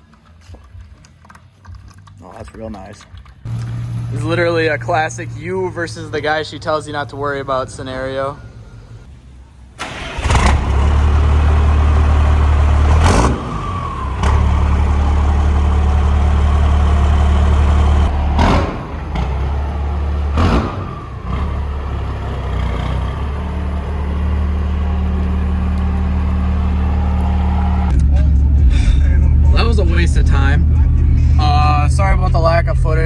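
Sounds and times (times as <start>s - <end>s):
diesel engine idling: 3.4s - 33.0s.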